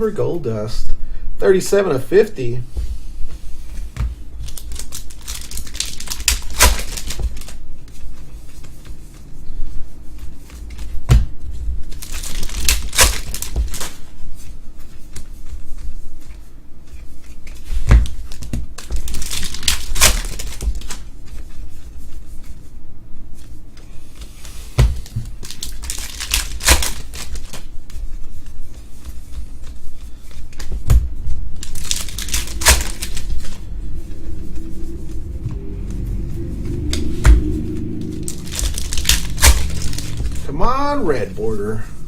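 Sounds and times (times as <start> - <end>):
foil wrappers tearing and crinkling: 4.4 - 7.6, 11.9 - 14.0, 18.2 - 21.0, 25.0 - 27.8, 31.5 - 33.3, 38.5 - 40.4.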